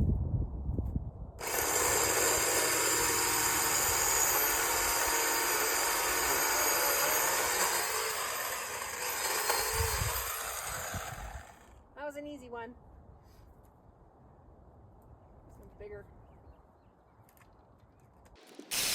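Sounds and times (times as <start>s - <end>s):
electric chainsaw cutting branch: 1.4s - 11.8s.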